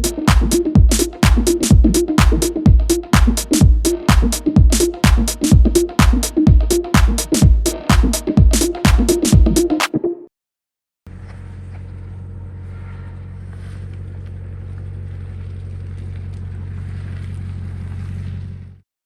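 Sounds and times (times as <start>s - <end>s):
car engine droning: 11.1s - 18.8s.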